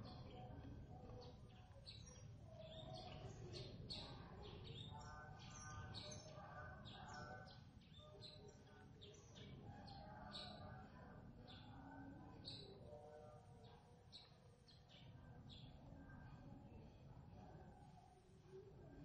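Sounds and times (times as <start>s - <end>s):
faint birds chirping: 0.0s - 19.0s.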